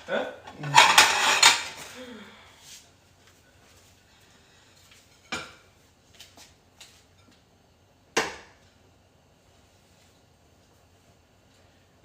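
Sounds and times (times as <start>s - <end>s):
kitchenware clanking: 0.4s - 1.9s.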